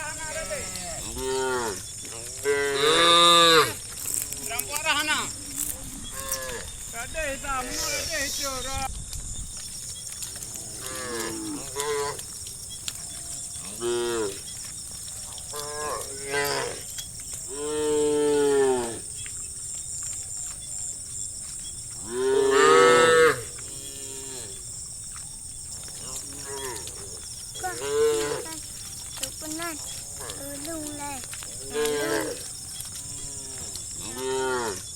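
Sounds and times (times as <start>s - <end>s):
steady high-pitched hiss: 0.0s - 34.0s
cattle mooing: 0.1s - 3.8s, 10.4s - 12.3s, 13.1s - 14.5s, 15.5s - 16.9s, 17.5s - 19.1s, 22.0s - 24.7s, 25.8s - 34.8s.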